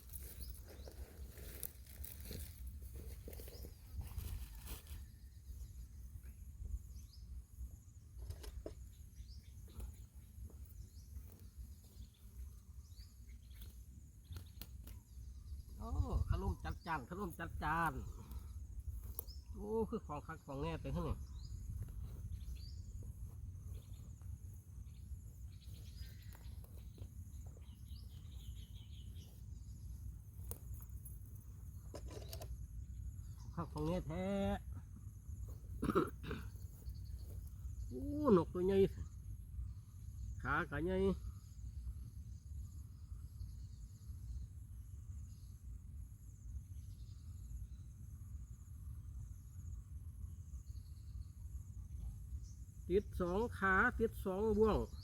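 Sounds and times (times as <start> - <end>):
insects trilling: 0.0 - 55.0
bird chirps: 3.3 - 31.2, 50.5 - 55.0
wind rumble on microphone: 15.1 - 19.5, 20.7 - 25.0.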